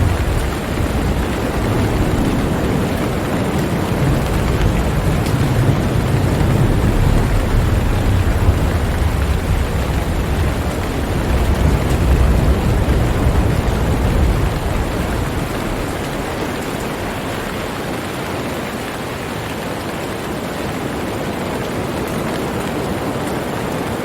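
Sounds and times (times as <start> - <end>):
thunder rumbling: 0.0 - 18.6
heavy rain hissing: 0.0 - 24.0.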